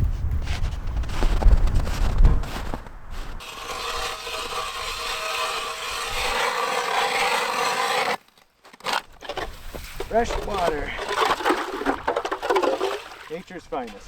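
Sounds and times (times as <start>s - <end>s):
ice auger grinding through ice: 3.4s - 14.0s.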